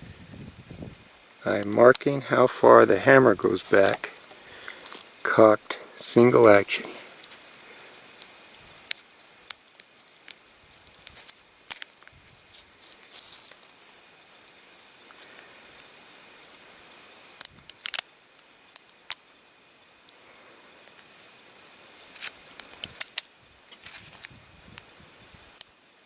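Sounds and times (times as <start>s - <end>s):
scratchy handling noises: 0.0s - 5.4s, 6.1s - 15.4s, 22.0s - 24.3s.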